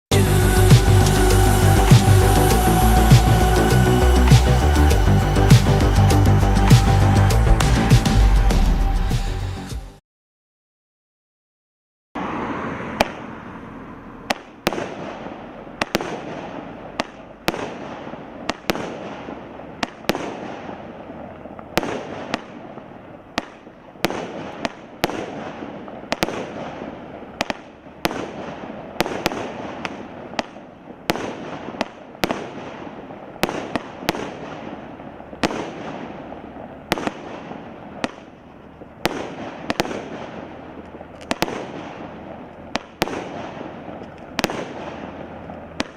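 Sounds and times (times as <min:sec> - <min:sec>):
firework bangs: 0:00.1 - 0:08.8, 0:12.2 - 0:45.9
firework hissing: 0:00.1 - 0:09.5.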